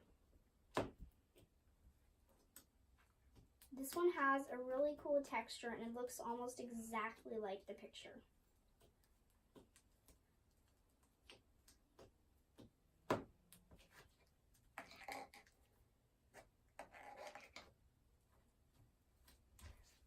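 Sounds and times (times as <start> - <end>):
sticky slime squelching: 6.6 - 17.9.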